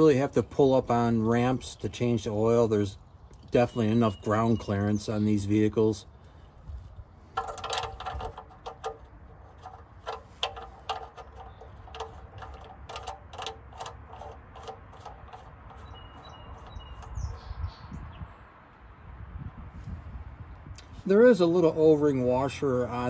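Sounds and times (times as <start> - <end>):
birds chirping: 0.0 - 19.2
low steady rumble: 4.6 - 23.0.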